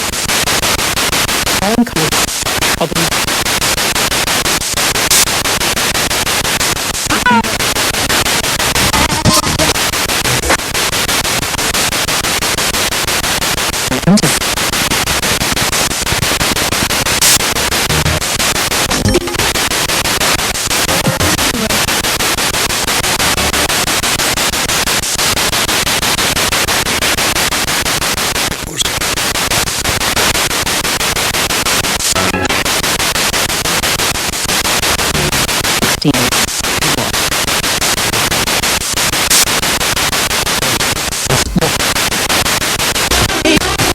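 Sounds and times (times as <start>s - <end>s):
radio static: 0.0s - 43.9s
snatches of broadcast music: 0.0s - 43.9s
snatches of radio voice: 1.5s - 3.4s, 4.6s - 5.7s, 7.0s - 10.7s, 13.8s - 19.8s, 20.6s - 22.0s, 28.5s - 30.0s, 31.8s - 32.8s, 34.9s - 43.9s.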